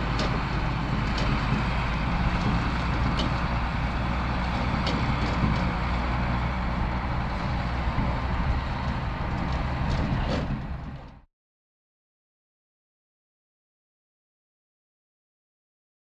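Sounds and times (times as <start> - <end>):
tractor diesel engine running: 0.0 - 11.2.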